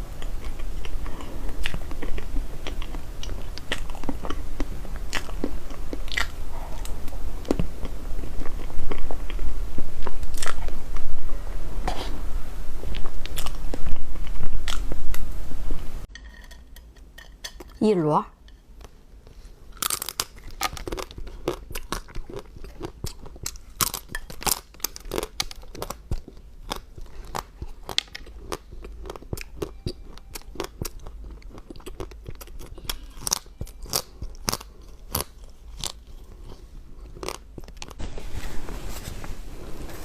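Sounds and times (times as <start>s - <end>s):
chewing crunchy food: 0.0s - 10.8s, 12.9s - 14.9s, 19.2s - 38.1s.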